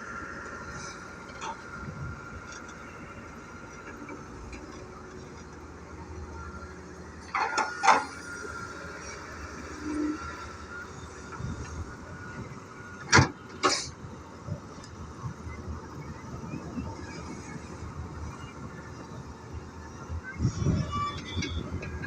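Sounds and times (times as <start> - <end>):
excavator rumble: 0.0 - 22.0
thin machine whine: 6.2 - 13.0.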